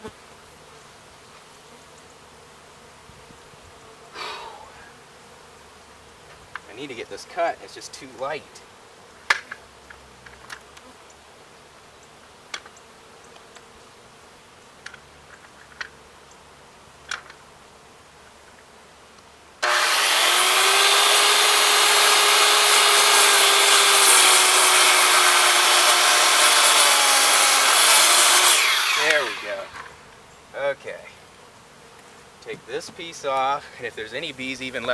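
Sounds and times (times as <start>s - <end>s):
power saw cutting wood: 19.6s - 30.0s.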